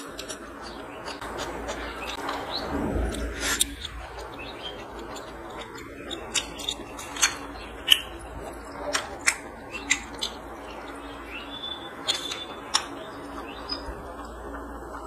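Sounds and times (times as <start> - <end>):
chewing with mouth clicks and smacks: 0.0 - 15.0
fingers squishing rice: 0.0 - 15.0.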